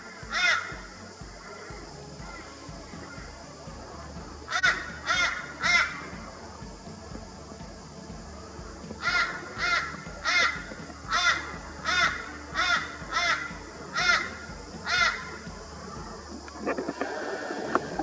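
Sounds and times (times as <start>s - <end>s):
large bird calling: 0.0s - 3.6s, 4.4s - 6.3s, 9.0s - 17.0s.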